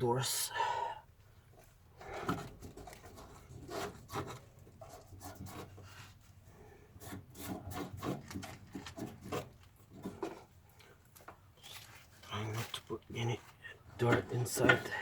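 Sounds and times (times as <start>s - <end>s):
rubbing and scraping strokes: 2.0s - 10.5s.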